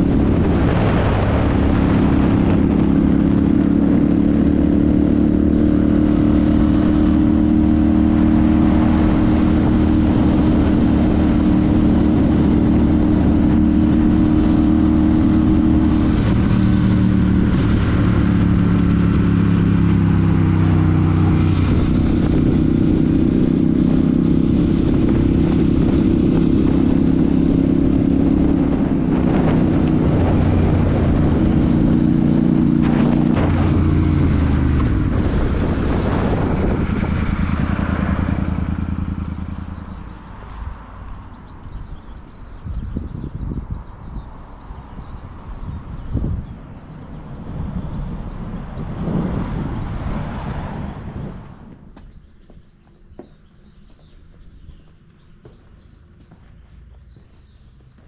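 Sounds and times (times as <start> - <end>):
motorcycle engine running: 0.0 - 44.2.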